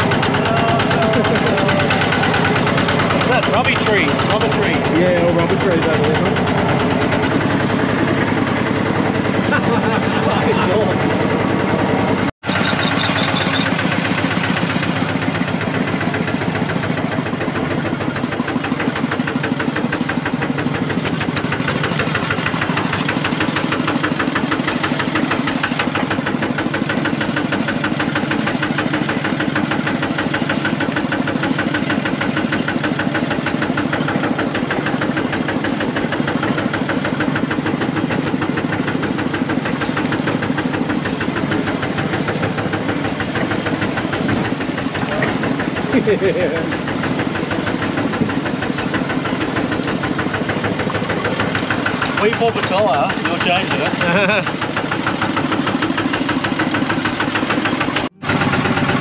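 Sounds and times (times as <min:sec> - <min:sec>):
tractor diesel engine chugging: 0:00.0 - 0:59.0.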